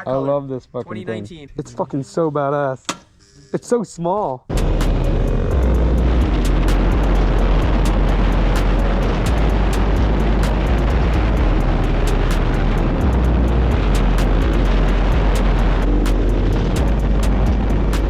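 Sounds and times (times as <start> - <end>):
wind rumble on microphone: 4.5 - 18.0.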